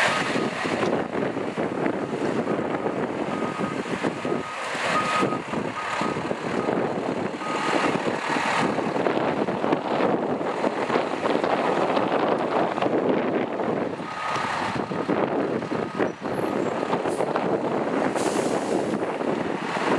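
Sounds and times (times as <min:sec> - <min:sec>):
fire engine running: 0:00.0 - 0:19.9
reversing alarm beeps: 0:03.3 - 0:06.8, 0:07.4 - 0:07.8.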